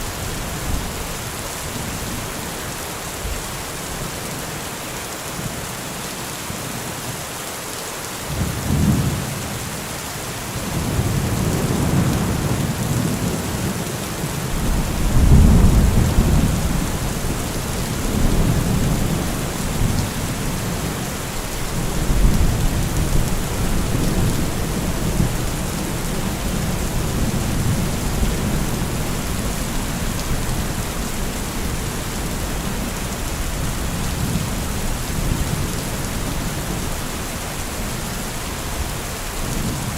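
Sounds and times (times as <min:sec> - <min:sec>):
heavy rain hissing: 0:00.0 - 0:39.9
thunder rumbling: 0:14.5 - 0:21.0.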